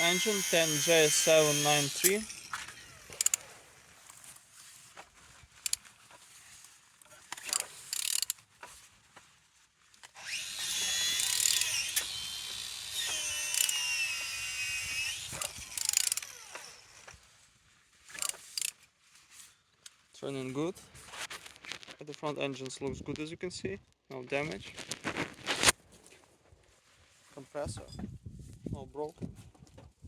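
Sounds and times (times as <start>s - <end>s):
ratchet wrench clicking: 0.0s - 3.4s, 7.4s - 8.4s, 11.2s - 12.1s, 13.5s - 13.7s, 15.4s - 16.4s, 18.2s - 18.7s
rotating engine whirring: 0.0s - 3.4s.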